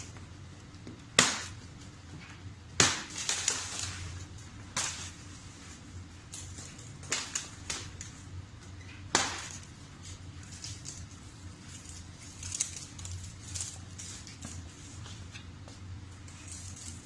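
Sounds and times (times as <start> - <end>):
sharp snap: 1.2 - 1.6.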